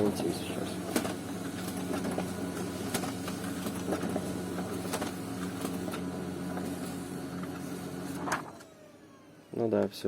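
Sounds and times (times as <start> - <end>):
laser printer running: 0.0 - 10.0.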